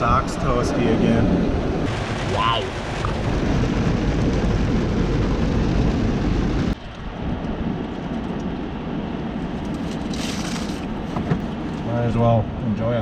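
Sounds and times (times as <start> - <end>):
heavy rain: 0.3 - 8.0.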